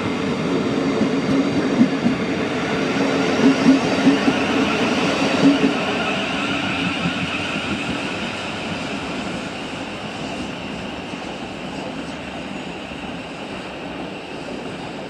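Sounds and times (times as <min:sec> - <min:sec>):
train rumbling along track: 0:00.0 - 0:15.0
train wheel clacks: 0:03.4 - 0:05.9.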